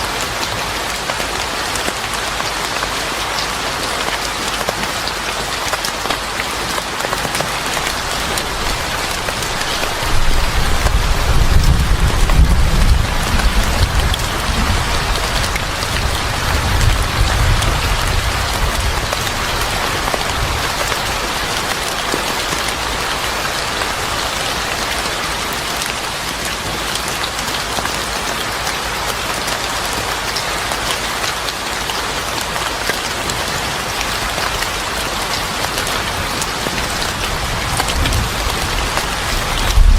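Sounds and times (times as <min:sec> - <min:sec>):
heavy rain pattering: 0:00.0 - 0:39.9
thunder rumbling: 0:07.8 - 0:21.5, 0:36.8 - 0:39.9.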